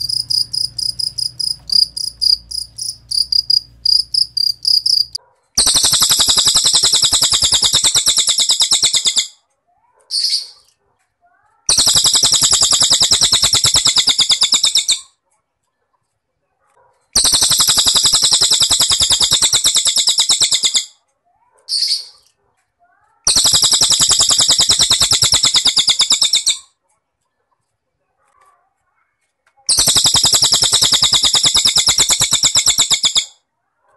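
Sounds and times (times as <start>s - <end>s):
bird high pulsed trills: 0.0s - 9.3s, 11.7s - 15.1s, 17.2s - 20.9s, 23.3s - 26.6s, 29.7s - 33.3s.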